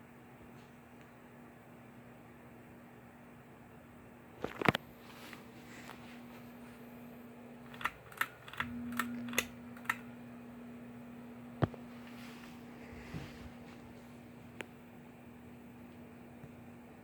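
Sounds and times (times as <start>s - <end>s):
ceiling fan motor humming: 0.0s - 17.0s
sharp clicks: 7.7s - 10.1s.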